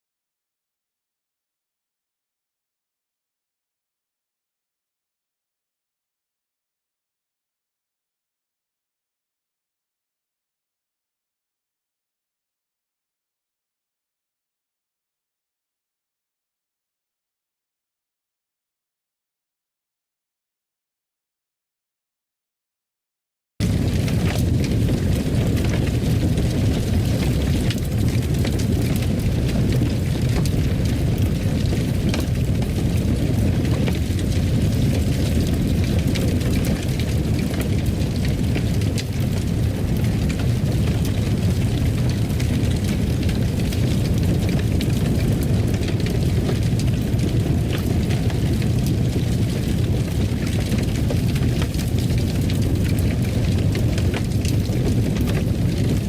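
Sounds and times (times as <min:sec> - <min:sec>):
fire crackles and pops: 0:23.6 - 0:56.0
fire flames rumbling: 0:23.6 - 0:56.0.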